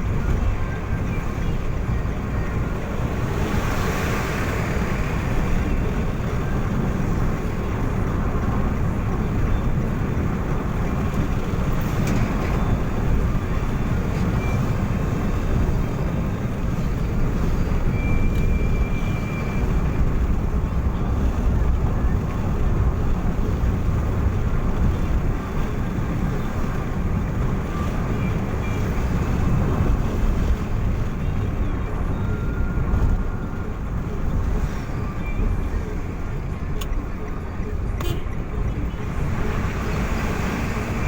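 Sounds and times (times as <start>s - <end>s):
vehicle road and engine rumble: 0.0s - 41.0s.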